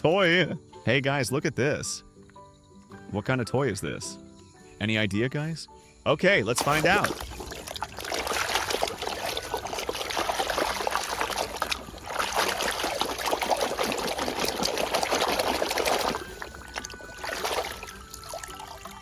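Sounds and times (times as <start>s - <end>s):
water trickling and splashing: 6.6s - 19.0s.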